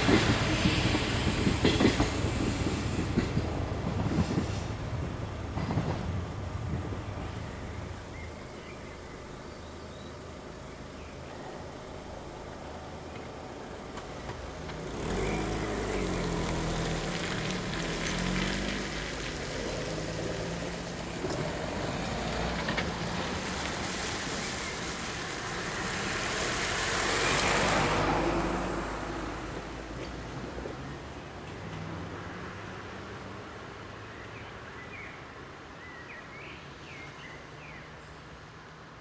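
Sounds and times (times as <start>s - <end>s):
car engine accelerating: 14.4s - 23.4s.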